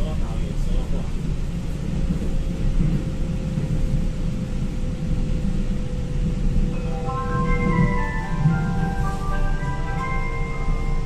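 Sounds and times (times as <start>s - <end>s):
melody of ringing notes: 6.7s - 11.0s.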